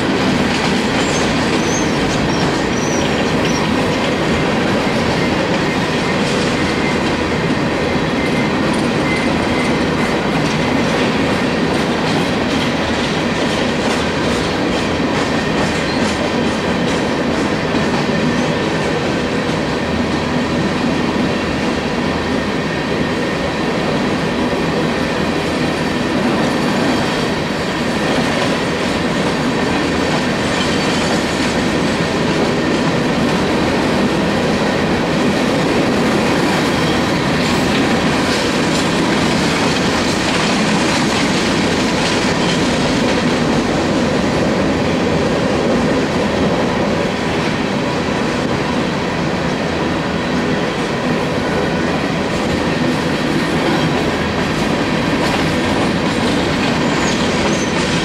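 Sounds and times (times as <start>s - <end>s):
wheels clacking over rail joints: 0.0s - 19.6s, 25.3s - 46.3s, 52.2s - 58.0s
train wheels rumbling on rail: 0.0s - 58.0s.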